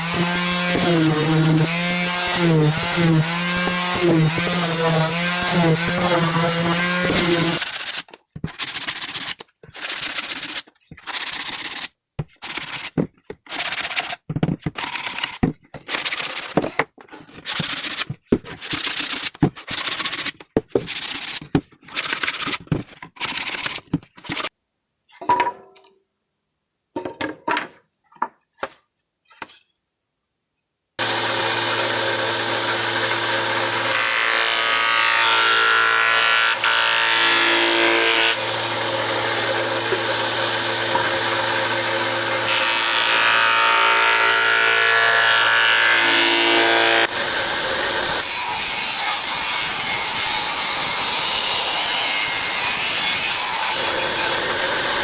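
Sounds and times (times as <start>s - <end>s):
electric power tool working wood: 0.0s - 16.8s, 31.0s - 55.0s
wood knocking: 7.0s - 24.5s.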